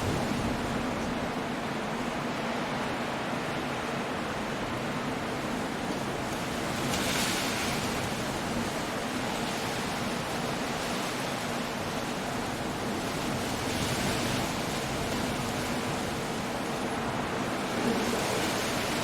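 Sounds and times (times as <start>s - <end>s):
wind: 0.0s - 19.0s
surf crashing: 14.2s - 19.0s.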